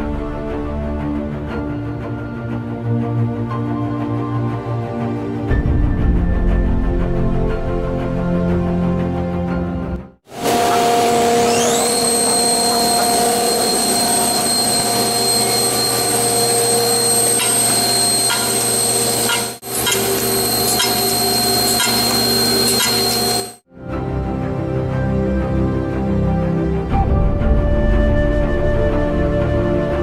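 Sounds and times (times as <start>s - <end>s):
drilling machine running: 10.3s - 23.6s
high spindle whine: 10.3s - 23.6s.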